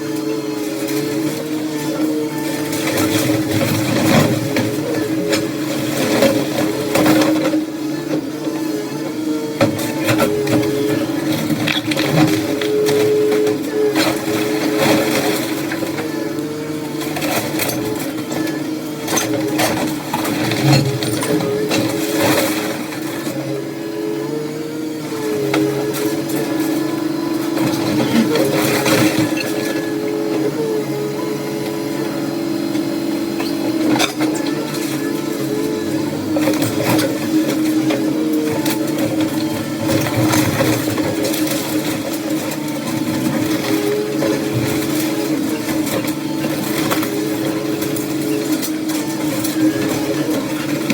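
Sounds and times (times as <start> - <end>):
machine engine running: 0.0 - 50.9
debris knocking and crunching: 9.6 - 23.2.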